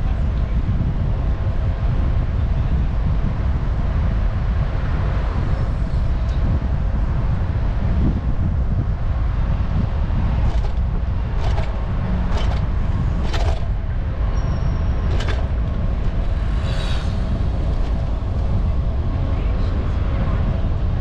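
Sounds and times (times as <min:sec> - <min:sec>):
wind and road noise: 0:00.0 - 0:21.0
sharp clicks or knocks: 0:11.4 - 0:13.7.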